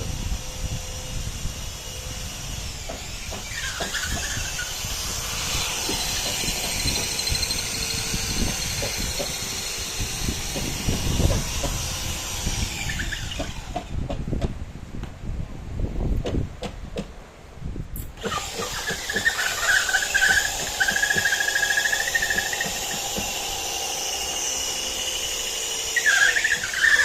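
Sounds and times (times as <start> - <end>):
power tool whining: 0.0 - 14.2, 18.1 - 27.0
knocks and thuds on wood: 13.4 - 14.6, 22.3 - 23.4.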